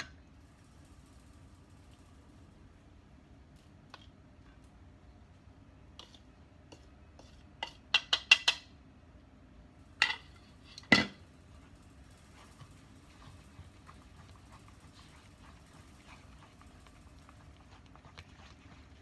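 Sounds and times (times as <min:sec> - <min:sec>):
utensils and dishes clinking: 0:10.0 - 0:11.2.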